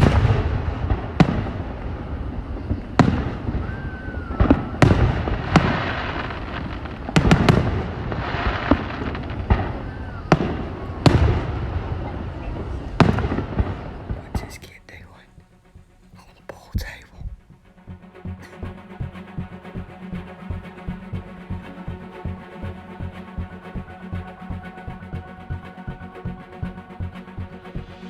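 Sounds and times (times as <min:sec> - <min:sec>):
sharp echoing bangs: 0:00.0 - 0:03.6.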